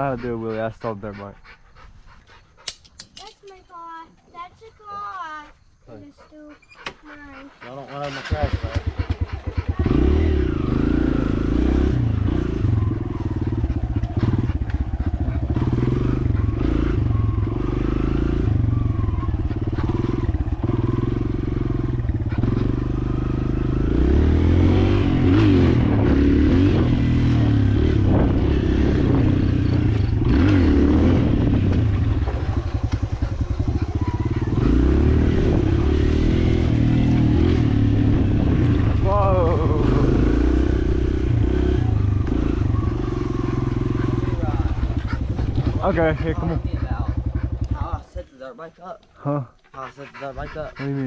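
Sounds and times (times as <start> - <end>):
dirt bike engine revving: 7.8 - 48.2.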